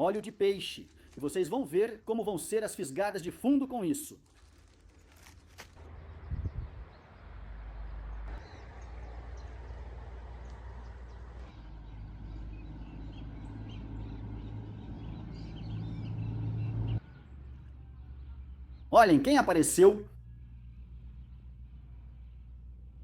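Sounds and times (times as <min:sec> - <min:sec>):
low rumbling outdoor noise: 0:04.2 - 0:23.0
birds chirping: 0:05.0 - 0:22.6.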